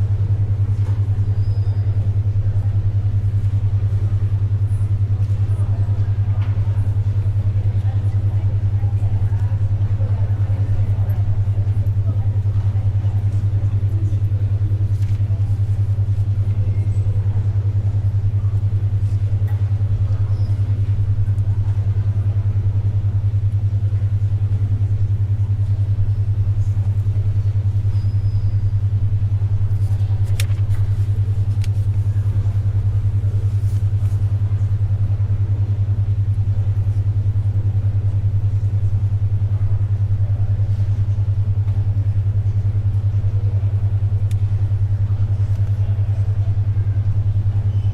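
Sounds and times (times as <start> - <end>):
faint library ambience: 0.0 - 47.9
pulsing low hum tone: 0.0 - 47.9
soft paper clicks: 14.9 - 15.3, 29.7 - 32.8.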